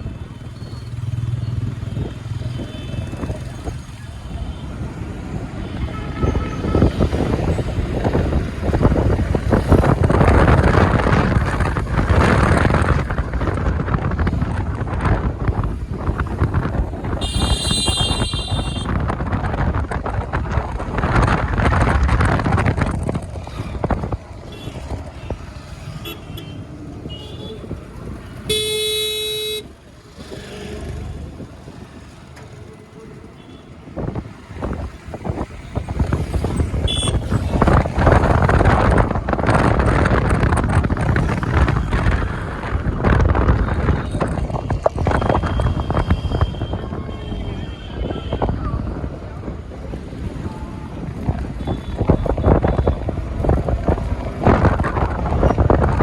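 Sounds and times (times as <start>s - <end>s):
road traffic: 0.0s - 56.0s
wind buffeting microphone: 0.0s - 56.0s
vehicle horn honking: 17.2s - 18.9s, 28.4s - 29.7s, 36.9s - 37.2s.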